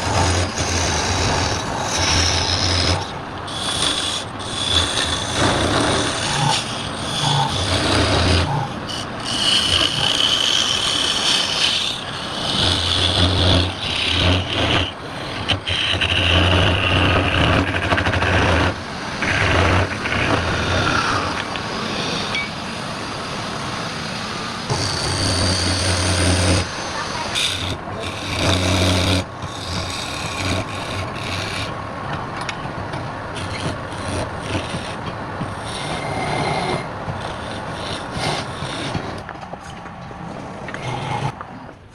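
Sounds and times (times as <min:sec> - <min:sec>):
tool scraping spinning wood: 0:00.0 - 0:23.6, 0:24.2 - 0:41.9
lathe low hum: 0:00.0 - 0:41.9.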